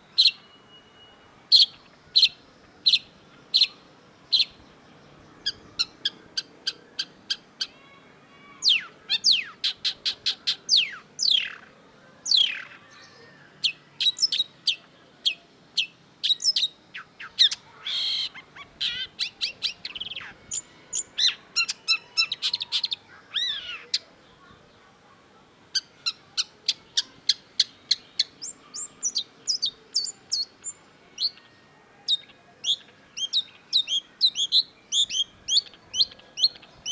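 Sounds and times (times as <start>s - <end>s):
shrike singing chips and whistles: 25.8s - 31.4s, 32.1s - 36.9s.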